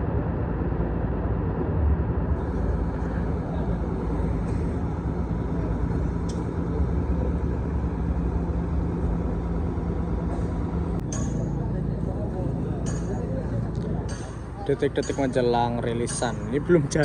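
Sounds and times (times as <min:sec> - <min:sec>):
bus engine idling: 0:02.2 - 0:17.0.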